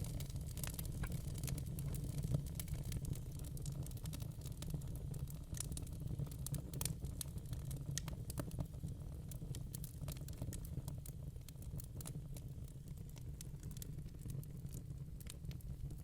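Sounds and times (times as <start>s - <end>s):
fireplace wood crackling: 0.0s - 1.6s
low rumble of flames: 0.0s - 16.0s.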